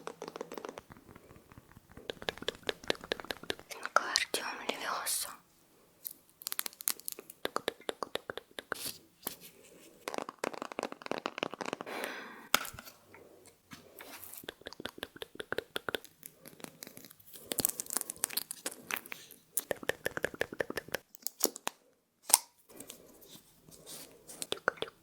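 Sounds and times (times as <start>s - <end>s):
rapid small clicks and crackles: 0.0s - 4.2s
soft hiss: 0.5s - 10.1s.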